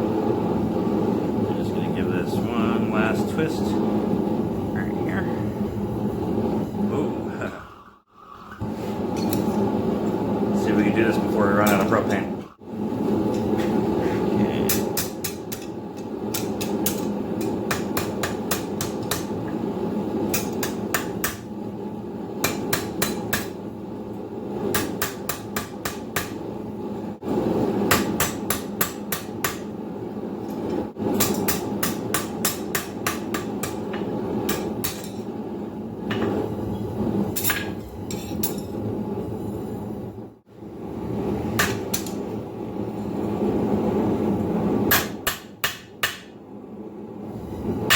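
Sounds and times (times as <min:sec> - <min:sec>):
gas forge roaring: 0:00.0 - 0:47.9
hammer striking steel on anvil: 0:14.7 - 0:15.7, 0:16.3 - 0:19.4, 0:20.3 - 0:21.4, 0:22.4 - 0:23.6, 0:24.7 - 0:26.4, 0:27.9 - 0:29.7, 0:31.2 - 0:35.2, 0:41.6 - 0:42.2, 0:44.9 - 0:46.4.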